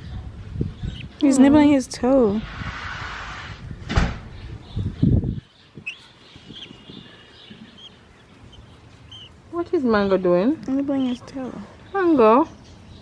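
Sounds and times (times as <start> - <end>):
budgies chirping: 0.6 - 1.8, 4.3 - 13.0.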